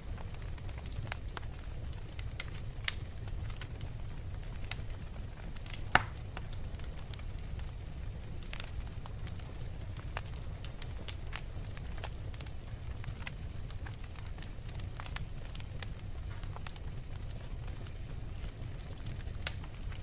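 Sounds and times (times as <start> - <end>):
logs crackling and popping: 0.0 - 20.0
low rumble of flames: 0.0 - 20.0.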